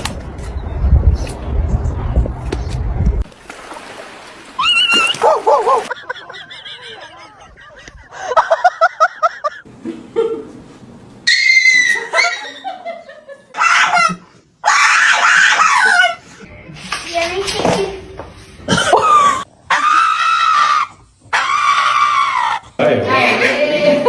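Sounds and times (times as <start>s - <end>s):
person laughing: 5.7s - 10.5s.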